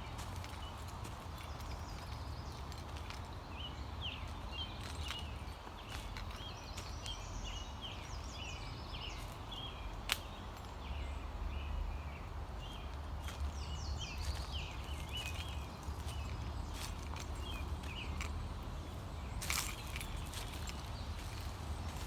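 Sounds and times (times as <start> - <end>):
small birds chirping: 0.0 - 22.0
footsteps in dry leaves: 12.7 - 22.0.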